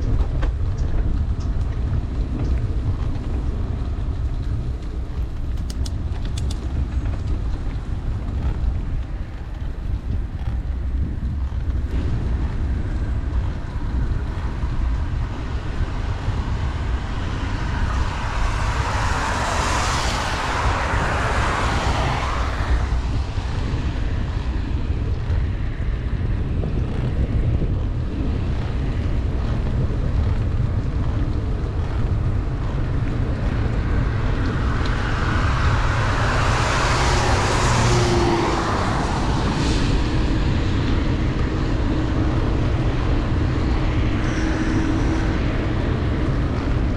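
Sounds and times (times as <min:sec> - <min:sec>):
wind buffeting microphone: 0:00.0 - 0:46.9
cars passing on wet road: 0:00.1 - 0:46.9
heavy rain: 0:01.2 - 0:26.6.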